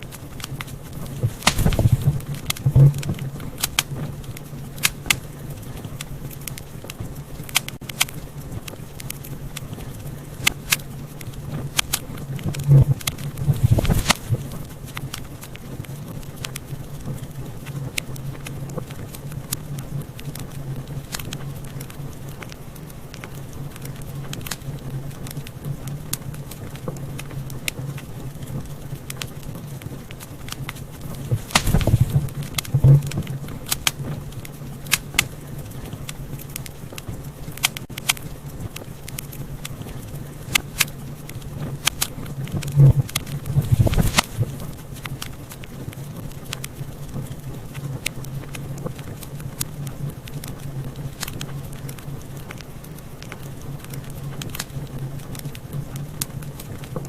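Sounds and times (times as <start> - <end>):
low fire rumble: 0.0 - 57.0
wood fire crackling: 0.0 - 57.0.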